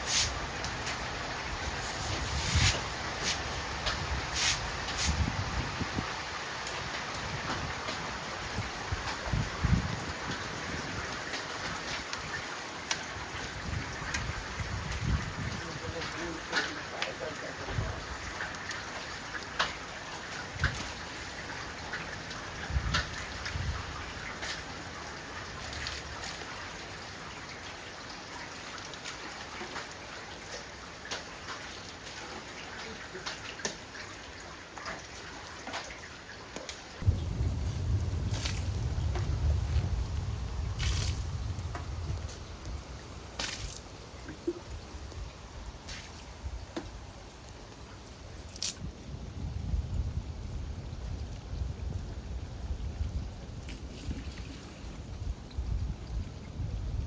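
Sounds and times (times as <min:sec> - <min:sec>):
hail and rain pouring: 0:00.0 - 0:47.9
hailstones ticking: 0:02.8 - 0:35.2.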